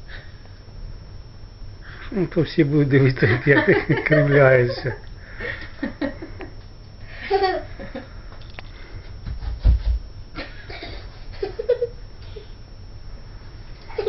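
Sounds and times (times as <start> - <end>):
person laughing: 3.2 - 8.2, 10.4 - 12.5.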